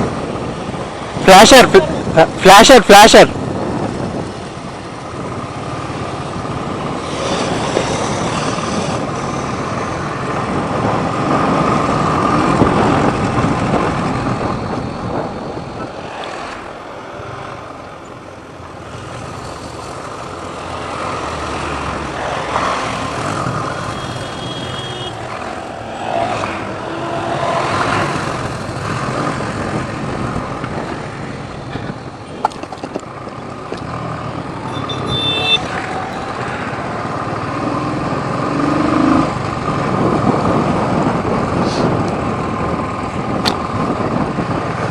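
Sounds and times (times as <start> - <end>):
other vehicles in traffic: 0.0 - 44.9
wind and road noise: 0.0 - 44.9
high-pitched horn tone: 23.9 - 25.2, 26.6 - 28.1, 34.7 - 35.8.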